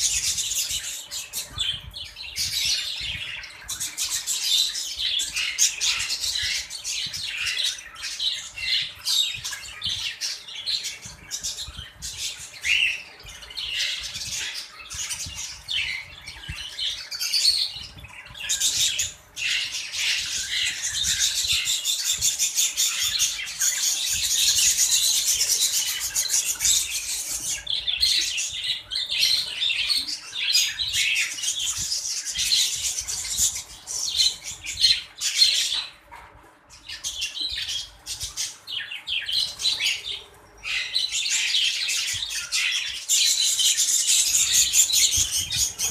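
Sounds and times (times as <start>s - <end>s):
budgerigars chattering and squawking: 0.0s - 36.1s, 36.8s - 45.9s.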